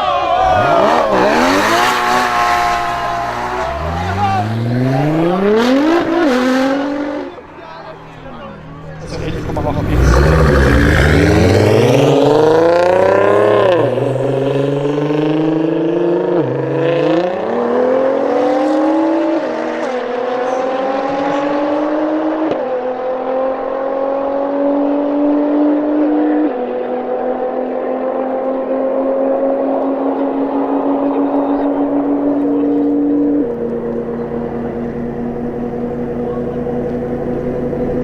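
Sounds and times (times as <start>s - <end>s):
car engine accelerating through gears: 0.4s - 7.5s, 8.7s - 38.0s.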